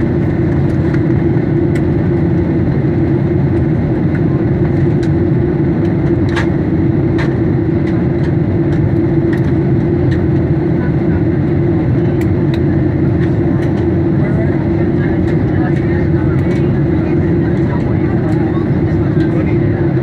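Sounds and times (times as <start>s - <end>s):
aircraft engine drone and rushing air: 0.0s - 20.0s
constant low hum: 0.0s - 20.0s.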